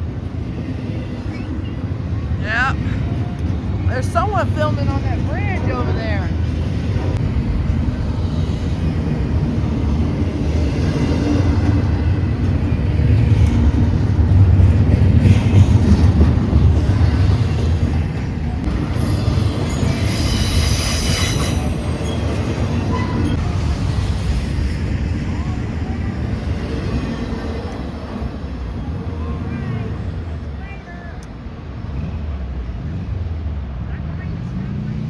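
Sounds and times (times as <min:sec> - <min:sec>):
train wheels rumbling on rail: 0:00.0 - 0:35.0
high-pitched wheel squeal: 0:18.9 - 0:23.4.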